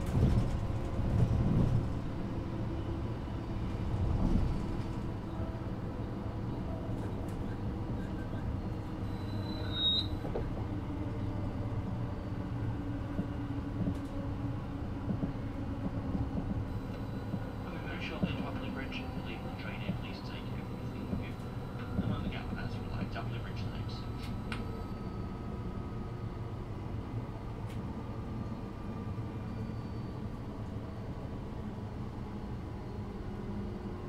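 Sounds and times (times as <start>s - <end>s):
train wheels rumbling: 0.0s - 25.9s
faint traction motor hum: 1.7s - 34.0s.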